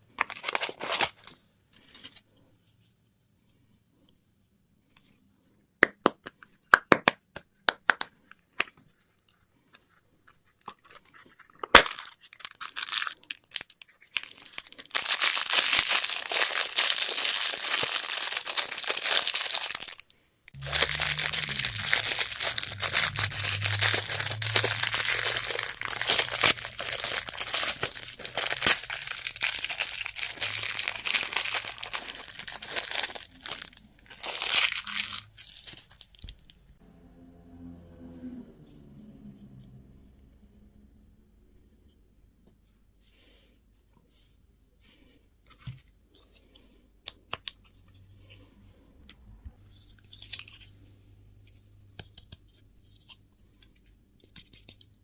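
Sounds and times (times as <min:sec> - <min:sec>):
wrapper crinkling and tearing: 0:00.1 - 0:02.2, 0:10.6 - 0:36.6, 0:49.7 - 0:50.7
low steady hum: 0:20.5 - 0:35.8.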